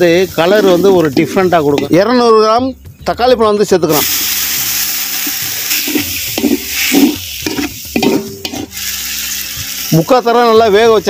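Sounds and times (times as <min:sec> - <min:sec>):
tomatoes sizzling in hot oil: 0:00.0 - 0:02.4, 0:03.8 - 0:11.0
metal ladle scraping a pot: 0:05.2 - 0:08.8.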